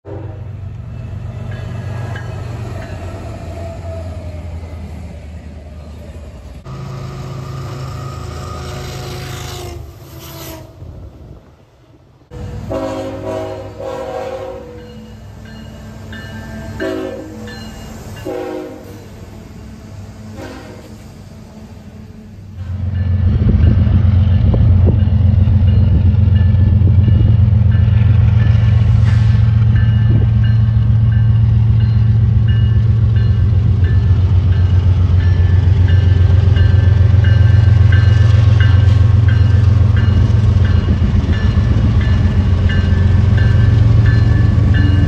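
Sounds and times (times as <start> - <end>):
locomotive air horn blasts: 0.0 - 0.5, 8.1 - 10.8, 12.3 - 15.0, 16.6 - 17.6, 18.2 - 19.1, 20.3 - 21.7
diesel locomotive engine rumble: 0.0 - 45.0.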